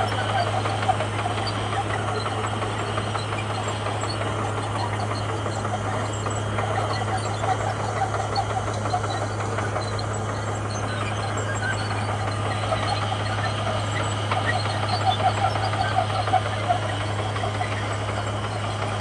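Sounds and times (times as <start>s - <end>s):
bulldozer diesel engine droning: 0.0s - 19.0s.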